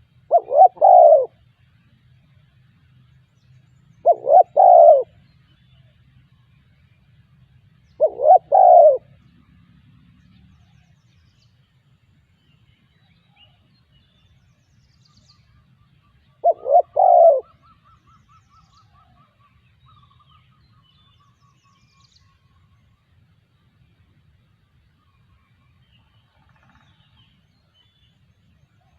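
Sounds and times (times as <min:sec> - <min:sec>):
faint rapid bird trill: 0:00.0 - 0:28.9
dove cooing: 0:00.3 - 0:01.4, 0:04.0 - 0:05.1, 0:08.0 - 0:09.1, 0:16.4 - 0:17.8.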